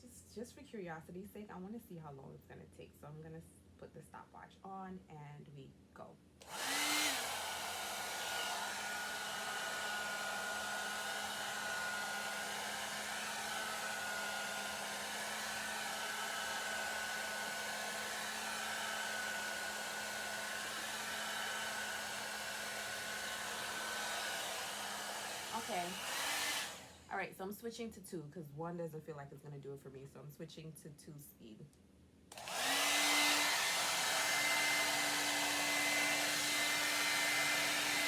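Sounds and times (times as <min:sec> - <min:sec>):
hair dryer running: 0:06.4 - 0:27.1, 0:32.3 - 0:38.0.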